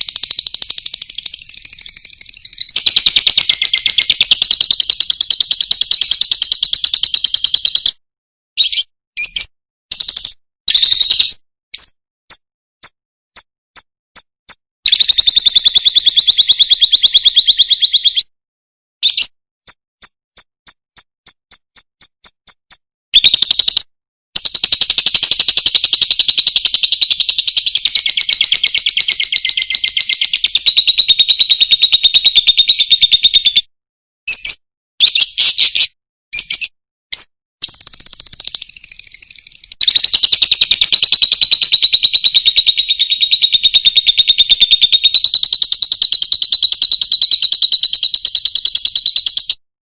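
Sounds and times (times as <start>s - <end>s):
buzzy high bird trilling: 0.0s - 7.9s, 14.5s - 18.2s, 23.2s - 23.8s, 24.4s - 33.6s, 34.3s - 49.4s
sharp bird chirps: 0.0s - 8.0s, 8.6s - 18.3s, 19.0s - 33.7s, 34.3s - 49.6s.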